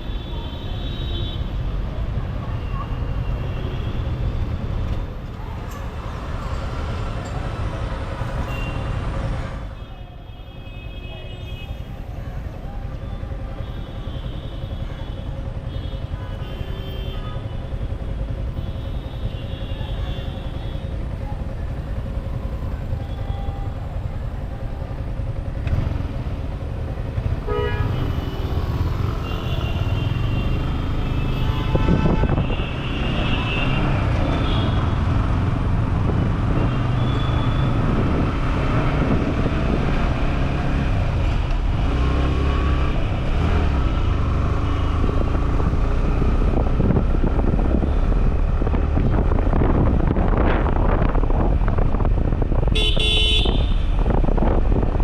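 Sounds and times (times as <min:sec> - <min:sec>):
road noise: 0:00.0 - 0:55.0
vehicle horns honking: 0:27.4 - 0:28.6, 0:29.2 - 0:35.0, 0:52.7 - 0:54.0.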